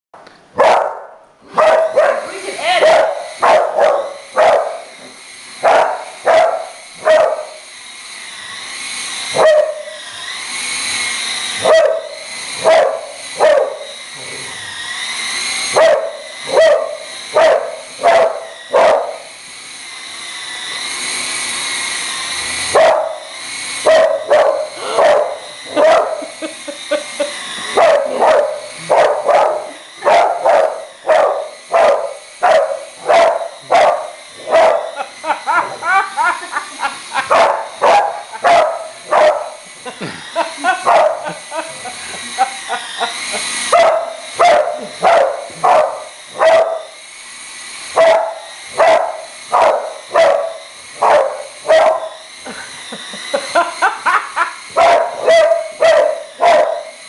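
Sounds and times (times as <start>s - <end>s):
dog barking: 0.6s - 4.8s, 5.6s - 7.5s, 9.4s - 9.8s, 11.6s - 13.8s, 15.8s - 19.3s, 22.7s - 23.2s, 23.9s - 26.2s, 27.7s - 35.0s, 37.3s - 39.6s, 40.8s - 41.4s, 43.7s - 46.9s, 48.0s - 52.2s, 54.8s - 56.9s
wavering whine with hiss: 1.9s - 57.0s.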